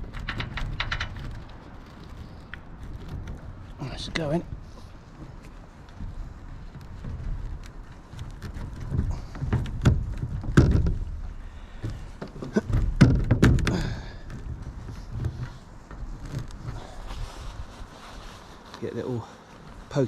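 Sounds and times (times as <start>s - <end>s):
metal channel knocks and thumps: 8.8s - 15.6s.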